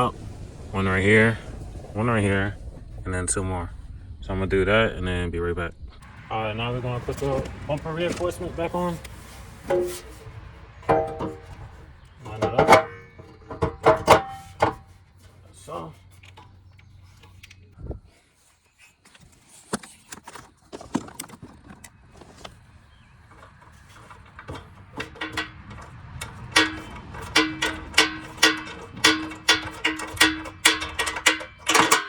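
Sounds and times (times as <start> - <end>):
metal bolts and tools clinking: 7.1 - 17.7, 23.2 - 32.0.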